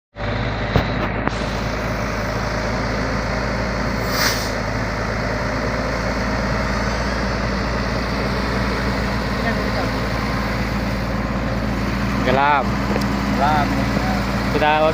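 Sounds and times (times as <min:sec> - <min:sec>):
diesel engine idling: 0:00.1 - 0:14.9
air hiss: 0:04.0 - 0:04.6.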